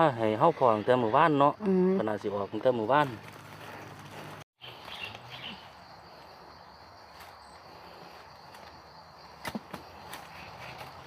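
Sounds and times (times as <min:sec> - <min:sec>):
high drone of insects: 0:04.6 - 0:11.0.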